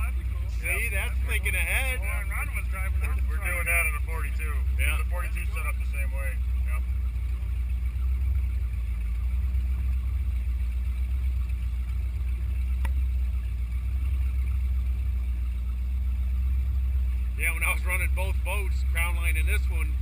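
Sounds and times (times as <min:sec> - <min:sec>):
boat engine rumbling: 0:00.0 - 0:20.0.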